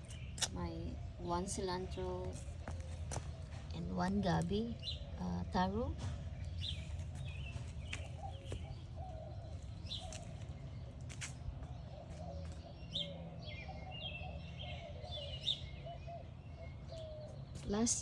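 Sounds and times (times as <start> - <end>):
birds chirping: 0.0 - 18.0
low background hum: 0.0 - 18.0.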